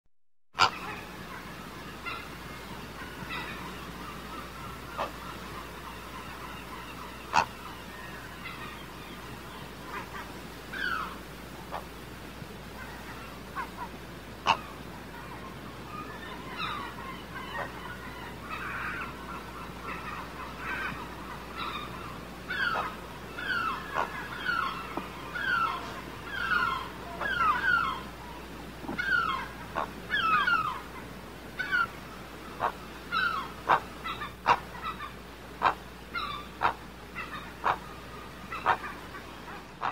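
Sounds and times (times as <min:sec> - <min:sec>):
low background noise: 0:00.6 - 0:39.9
birds calling sharply: 0:14.5 - 0:39.9.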